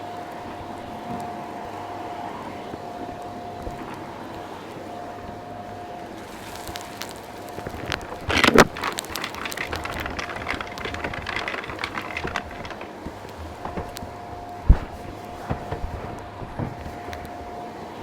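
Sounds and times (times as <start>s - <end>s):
vacuum cleaner motor: 0.0s - 18.0s
grit crackling up vacuum tool: 6.5s - 17.6s.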